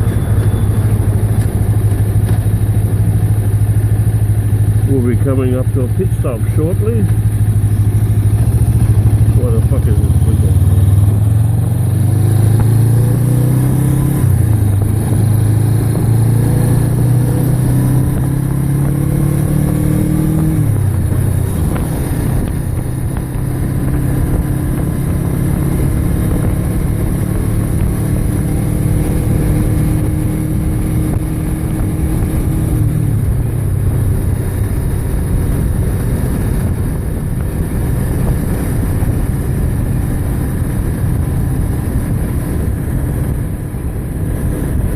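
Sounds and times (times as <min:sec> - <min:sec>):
motorcycle engine running: 0:00.0 - 0:44.9
wind and road noise: 0:00.0 - 0:44.9.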